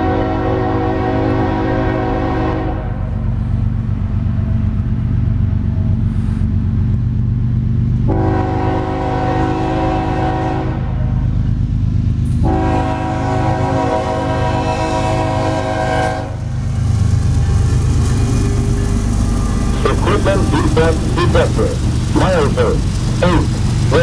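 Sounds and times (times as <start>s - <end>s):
locomotive air horn blasts: 0.0s - 3.0s, 8.1s - 11.0s, 12.4s - 16.4s
passing train rumble: 0.0s - 24.0s.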